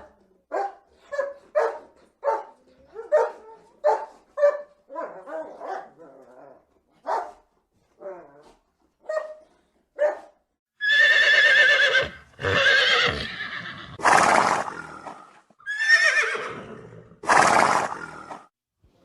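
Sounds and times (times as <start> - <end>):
horse calling: 10.8 - 18.4.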